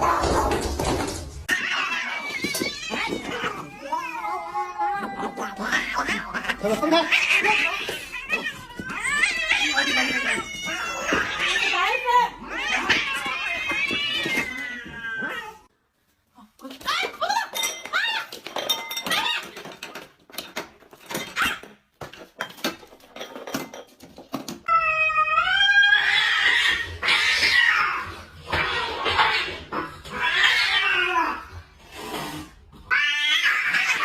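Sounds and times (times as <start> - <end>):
cat meowing and yowling: 24.7 - 29.5.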